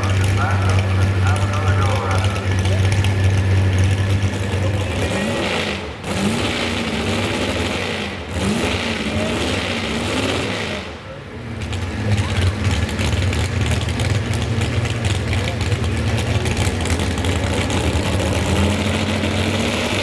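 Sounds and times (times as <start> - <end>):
low engine drone: 0.0 - 6.0
truck engine revving: 0.0 - 20.0.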